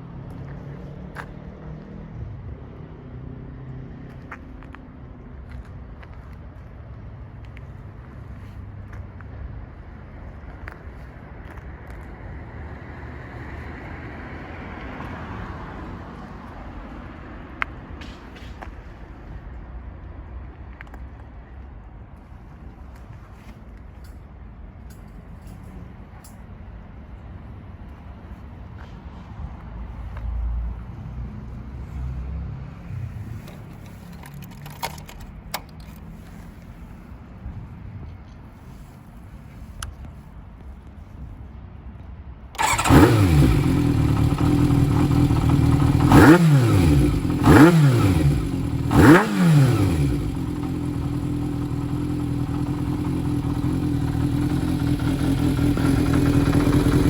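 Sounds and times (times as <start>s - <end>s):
motorcycle engine rumbling: 42.6s - 57.0s.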